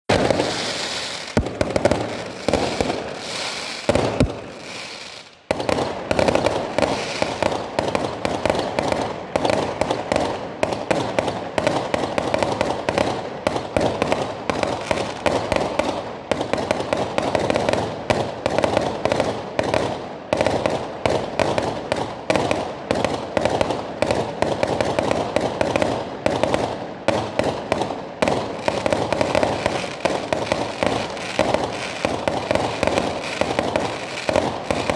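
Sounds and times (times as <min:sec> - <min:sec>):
fireworks bangs and crackles: 0:00.1 - 0:34.9.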